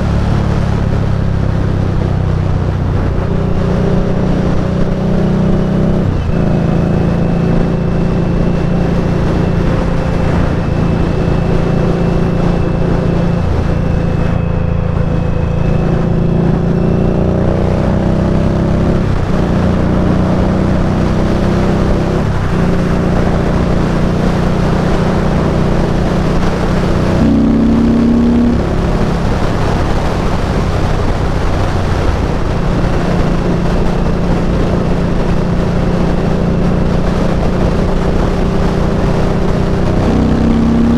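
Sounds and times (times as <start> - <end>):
motorcycle engine running: 0.0 - 40.9
brief steady tone: 6.2 - 17.4, 27.0 - 29.3.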